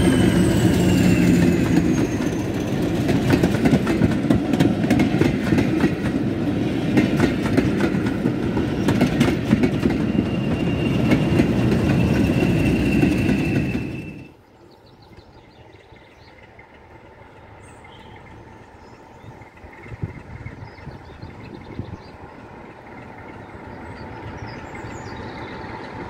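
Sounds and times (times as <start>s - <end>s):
train wheels clattering over joints: 0.0s - 14.3s
diesel locomotive engine: 0.0s - 26.0s.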